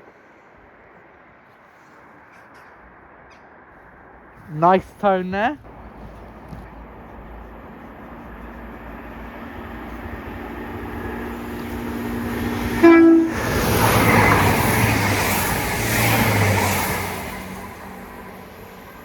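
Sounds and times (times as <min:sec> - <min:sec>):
diesel train engine and rail noise: 0:00.0 - 0:19.0
train horn blast: 0:12.6 - 0:13.5.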